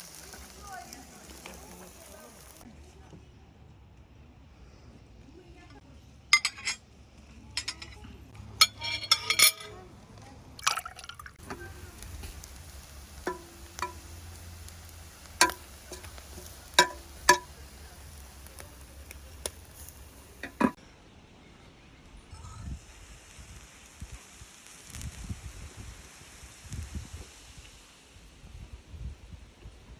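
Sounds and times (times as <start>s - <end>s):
utensils clinking on cookware: 6.4s - 6.8s, 7.5s - 9.8s, 10.6s - 20.8s.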